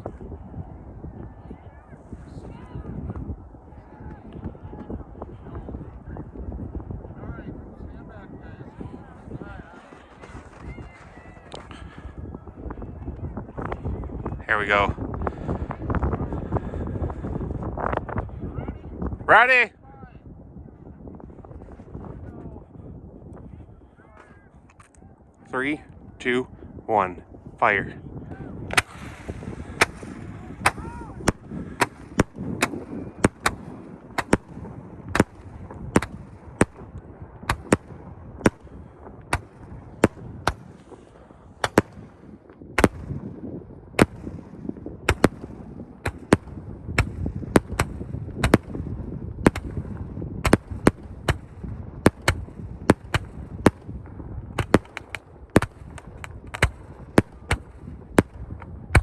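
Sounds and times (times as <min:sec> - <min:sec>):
low rumble: 0:25.8 - 0:59.0
fireworks bursting: 0:28.7 - 0:43.4, 0:44.0 - 0:59.0.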